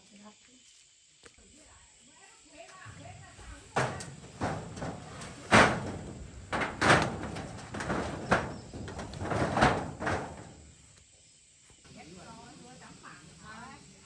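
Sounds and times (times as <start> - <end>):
irregular knocks and bangs: 2.9 - 10.9.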